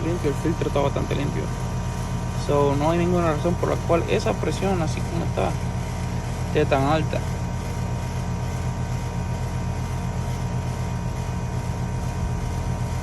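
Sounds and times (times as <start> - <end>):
air conditioner compressor hum: 0.0 - 13.0.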